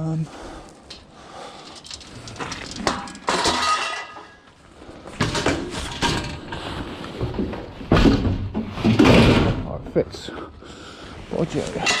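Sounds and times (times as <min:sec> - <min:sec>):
scrap objects knocking and clinking: 0:01.6 - 0:04.4
loud metal clatter and clank: 0:01.7 - 0:04.4, 0:07.9 - 0:09.8.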